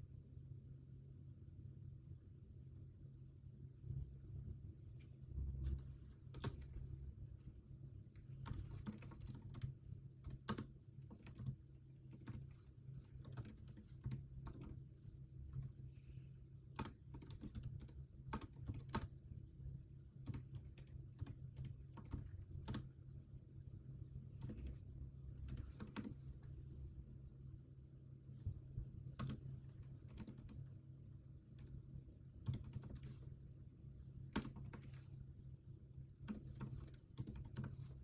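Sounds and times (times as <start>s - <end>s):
steady low hum: 0.0s - 38.0s
typing on computer keyboard: 5.8s - 6.7s, 8.4s - 14.8s, 16.8s - 19.1s, 20.2s - 22.9s, 24.4s - 24.8s, 25.4s - 26.2s, 29.2s - 30.7s, 32.4s - 33.2s, 34.4s - 35.0s, 36.3s - 37.8s.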